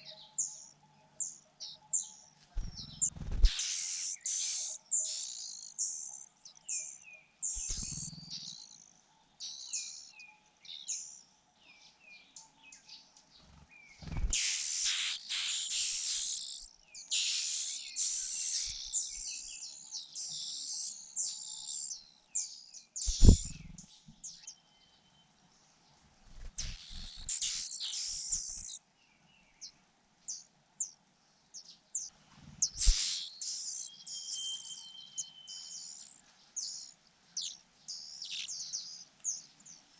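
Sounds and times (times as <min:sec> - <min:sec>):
nestlings begging chirps: 0:02.6 - 0:06.3, 0:07.4 - 0:08.8, 0:14.0 - 0:22.0, 0:23.0 - 0:23.9, 0:26.5 - 0:28.8, 0:32.6 - 0:39.4.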